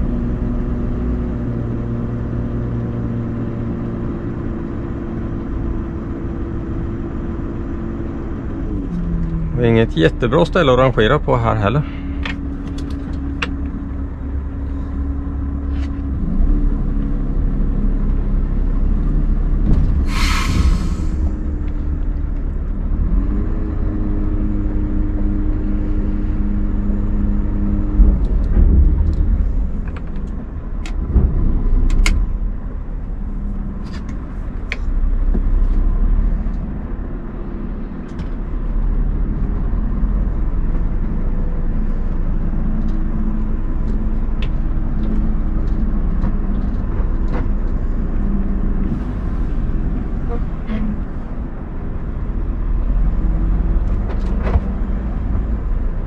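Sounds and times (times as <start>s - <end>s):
truck diesel engine: 0.0s - 56.0s
compressed air hiss: 20.0s - 21.5s.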